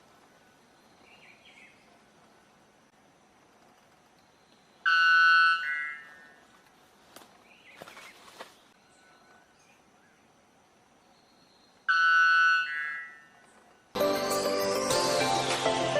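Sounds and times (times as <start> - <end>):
music: 14.0 - 15.9.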